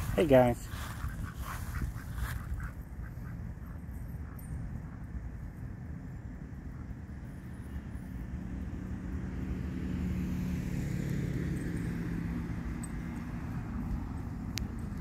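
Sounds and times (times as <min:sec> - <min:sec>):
car driving past: 0:07.5 - 0:15.0.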